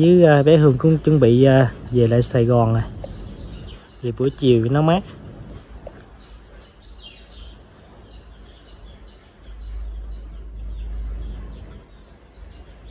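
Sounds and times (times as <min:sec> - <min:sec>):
outdoor background hiss: 0:00.0 - 0:12.9
small birds chirping: 0:00.0 - 0:12.9
low rumble: 0:01.0 - 0:07.0, 0:08.8 - 0:12.9.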